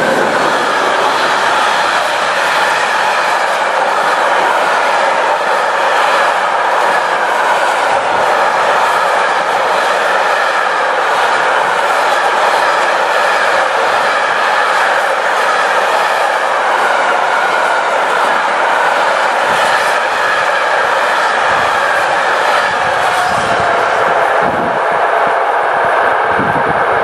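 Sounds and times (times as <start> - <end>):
freight train wheels on rails: 0.0 - 27.0.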